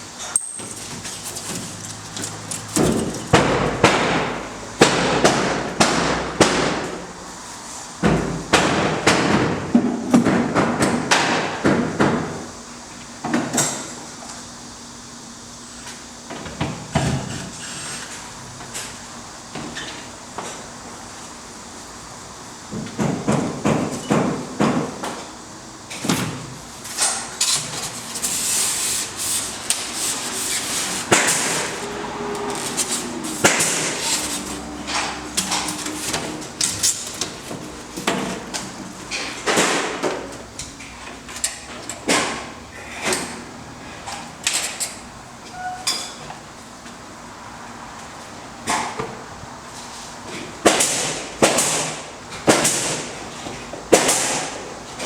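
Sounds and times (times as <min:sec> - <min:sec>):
scraping and rubbing: 0:27.6 - 0:34.7.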